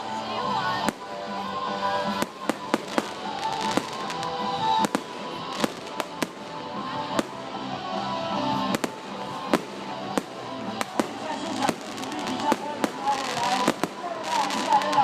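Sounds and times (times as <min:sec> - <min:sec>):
music playing: 0:00.0 - 0:15.0
fireworks crackle: 0:01.8 - 0:07.5, 0:08.6 - 0:15.0
fireworks bangs: 0:02.0 - 0:07.4, 0:08.6 - 0:15.0.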